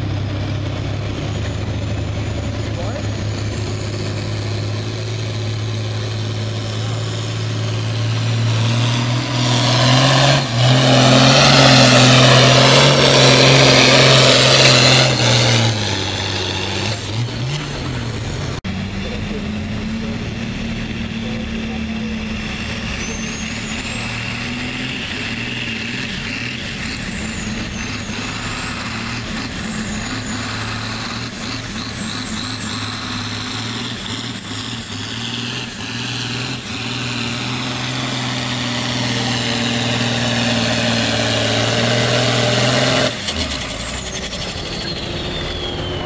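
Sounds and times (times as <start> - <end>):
diesel tractor engine under load: 0.0 - 46.0
high turbo whistle: 22.6 - 46.0.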